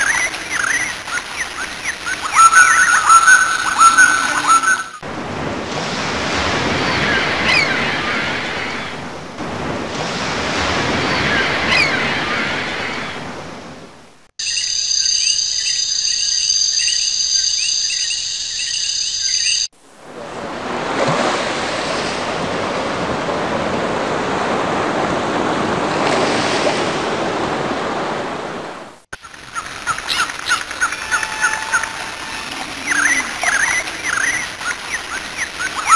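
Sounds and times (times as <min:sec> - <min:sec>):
ocean waves surging: 0:00.0 - 0:14.3, 0:19.8 - 0:35.9.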